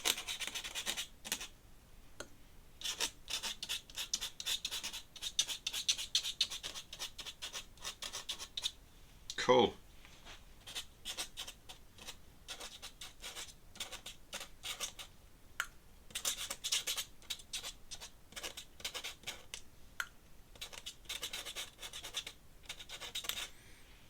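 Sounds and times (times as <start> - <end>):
pen nib scratching paper: 0.0 - 1.5, 2.8 - 8.8, 10.6 - 15.1, 16.1 - 19.6, 20.6 - 23.5.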